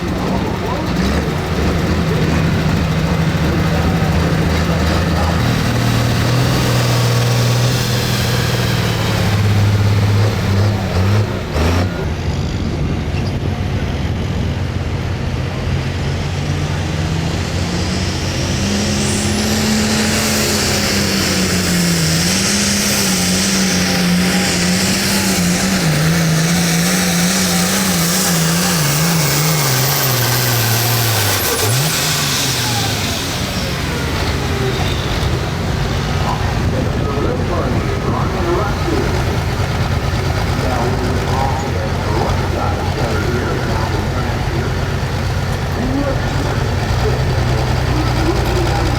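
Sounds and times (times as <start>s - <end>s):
tractor diesel engine under load: 0.0s - 48.9s.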